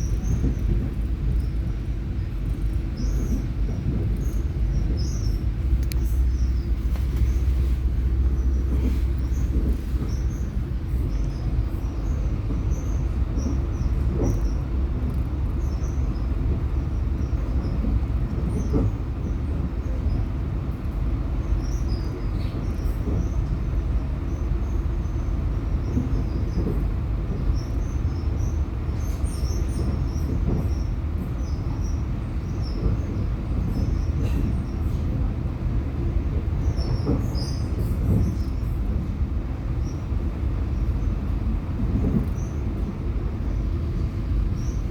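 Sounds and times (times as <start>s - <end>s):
train wheels rumbling on rails: 0.0s - 44.9s
faint clicks: 5.8s - 6.1s.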